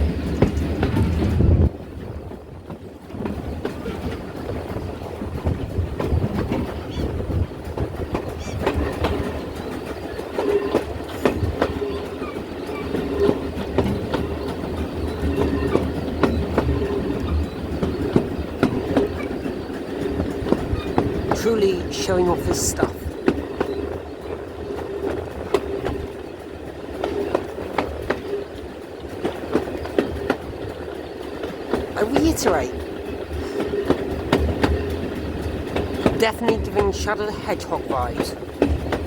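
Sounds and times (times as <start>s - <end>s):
train rumble: 0.0s - 39.0s
wheels clicking over rail joints: 0.0s - 39.0s.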